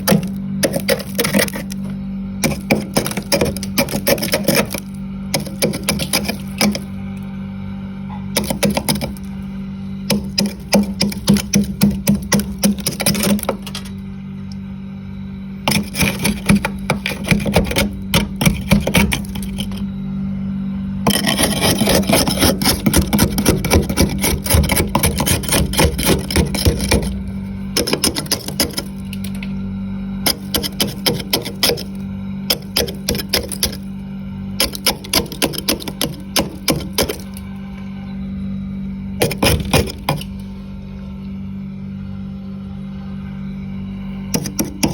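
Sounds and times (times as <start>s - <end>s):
freezer frost being scraped: 0.0s - 7.0s, 8.4s - 9.5s, 10.1s - 13.9s, 15.6s - 19.8s, 21.1s - 29.4s, 30.2s - 33.9s, 34.6s - 37.5s, 39.2s - 40.4s, 44.3s - 44.9s
steady low hum: 0.0s - 44.9s.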